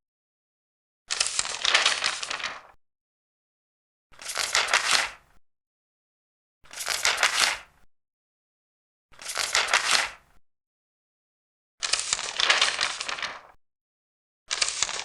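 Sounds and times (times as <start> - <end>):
paper pages turning: 1.1 - 2.8, 4.2 - 5.2, 6.7 - 7.7, 9.2 - 10.2, 11.8 - 13.6, 14.5 - 15.0.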